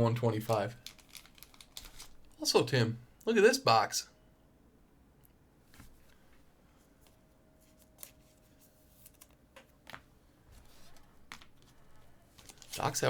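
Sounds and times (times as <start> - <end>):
trading cards clicking: 0.5 - 2.2.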